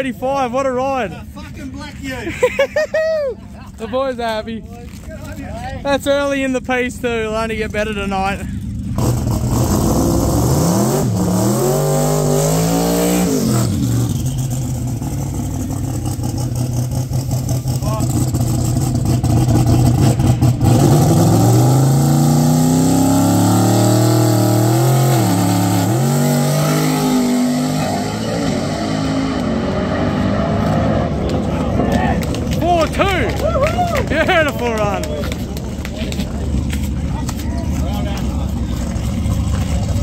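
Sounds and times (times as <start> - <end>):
turbocharged engine revving: 7.7 - 33.1.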